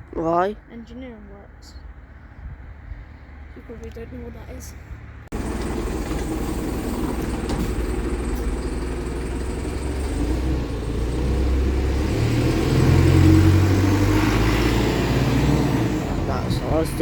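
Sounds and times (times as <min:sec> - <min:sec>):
vehicle engine accelerating: 0:05.3 - 0:17.0.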